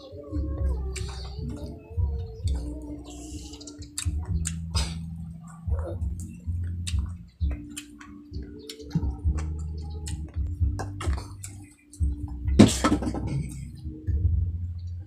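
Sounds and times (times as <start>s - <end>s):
low hum: 0.0s - 15.0s
mouth clicks: 0.7s - 12.4s
wet chewing and lip-smacking: 2.4s - 11.6s.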